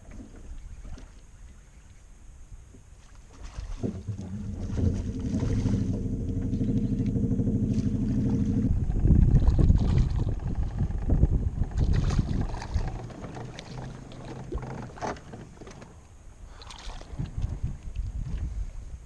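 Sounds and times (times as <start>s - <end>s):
uneven low rumble: 3.4s - 19.0s
small boat motor running: 3.6s - 17.0s.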